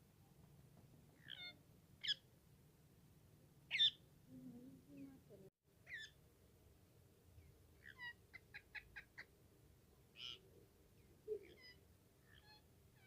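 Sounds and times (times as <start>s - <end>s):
parrot chirping: 1.2s - 2.2s, 3.7s - 4.0s, 5.9s - 6.2s, 7.8s - 9.3s, 11.3s - 12.6s
parrot squawk: 11.4s - 12.6s.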